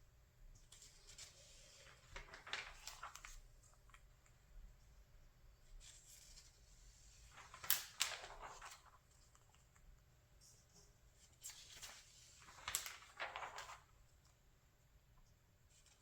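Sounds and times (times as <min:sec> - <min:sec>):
magazine pages turning: 0:00.7 - 0:04.0, 0:05.8 - 0:09.8, 0:11.2 - 0:14.0.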